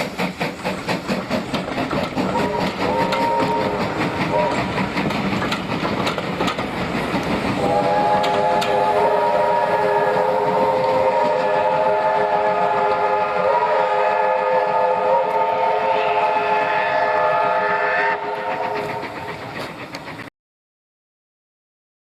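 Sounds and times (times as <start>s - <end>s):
train noise: 0.0s - 20.3s
steam locomotive whistle: 2.2s - 4.9s, 7.6s - 19.4s.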